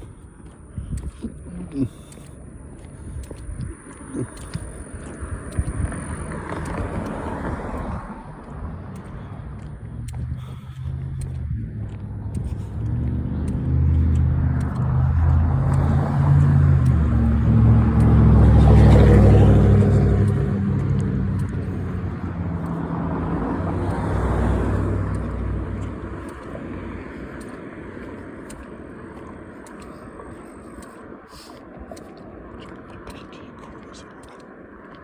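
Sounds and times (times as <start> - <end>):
vehicle driving past: 4.3 - 31.1.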